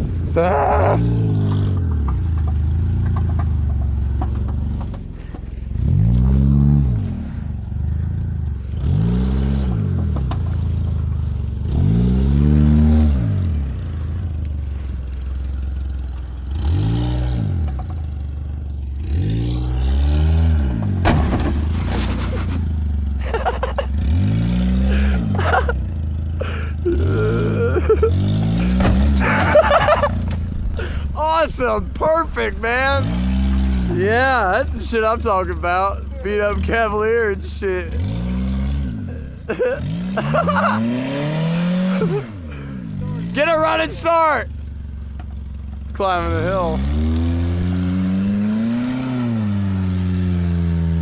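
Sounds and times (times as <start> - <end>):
scraping and clattering impacts: 0.0 - 7.3, 20.4 - 24.3, 28.2 - 37.3
car engine revving: 0.0 - 51.0.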